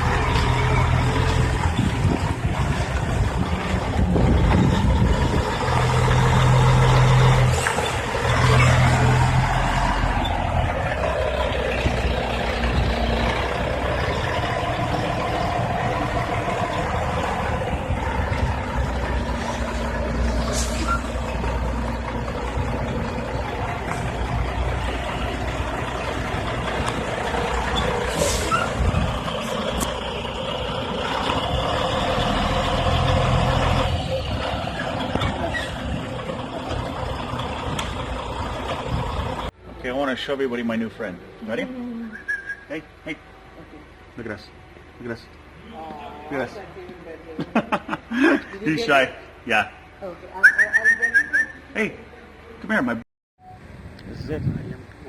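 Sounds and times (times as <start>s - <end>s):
truck engine running: 0.0s - 41.4s
air brake hiss: 20.4s - 21.0s, 28.1s - 28.7s.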